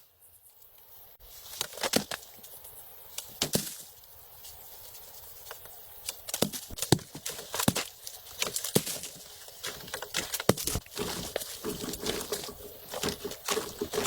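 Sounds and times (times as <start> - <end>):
knocks and clatter of handling: 6.4 - 14.0.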